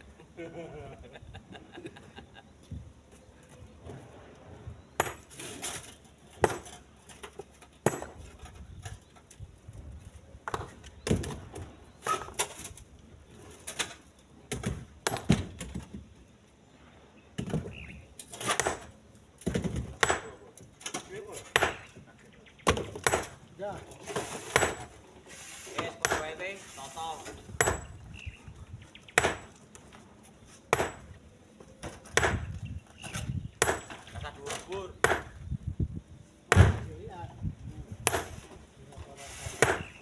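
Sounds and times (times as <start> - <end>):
stones clunking into truck bed: 5.0 - 9.4, 13.5 - 16.1, 17.4 - 25.1.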